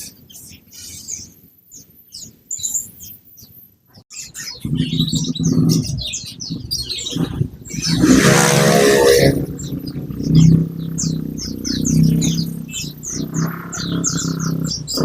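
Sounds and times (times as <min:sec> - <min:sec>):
songbirds chirping: 0:00.0 - 0:15.0
harsh rushing noise: 0:04.6 - 0:15.0
low growl-like drone: 0:04.6 - 0:15.0.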